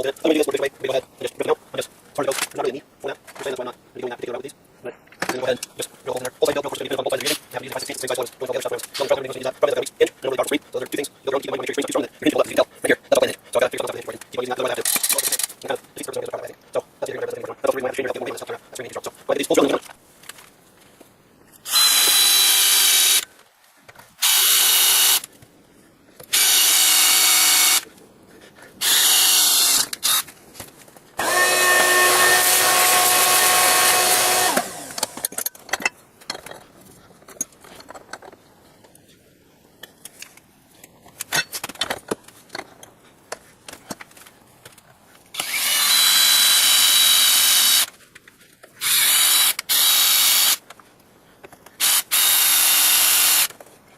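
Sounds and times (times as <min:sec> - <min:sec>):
clicks and handling noises: 0:02.1 - 0:03.8, 0:05.0 - 0:21.7, 0:29.7 - 0:31.2, 0:34.4 - 0:45.6, 0:47.8 - 0:48.8, 0:50.6 - 0:51.9, 0:53.4 - 0:53.9
power drill drilling: 0:21.6 - 0:23.2, 0:24.2 - 0:25.3, 0:26.3 - 0:27.8, 0:28.8 - 0:30.2, 0:31.2 - 0:35.3, 0:45.4 - 0:47.9, 0:48.8 - 0:50.6, 0:51.8 - 0:53.5.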